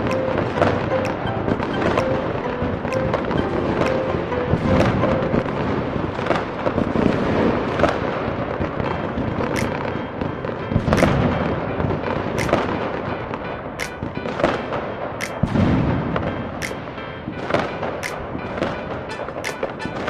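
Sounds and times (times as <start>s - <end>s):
fireworks cracking: 0.0s - 13.1s
background music: 0.0s - 20.0s
deep fireworks booms: 15.4s - 16.2s.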